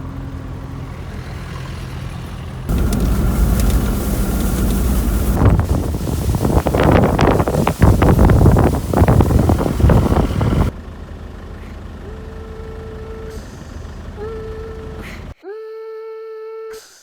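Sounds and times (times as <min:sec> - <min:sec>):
loud rumbling noise: 0:02.7 - 0:11.0.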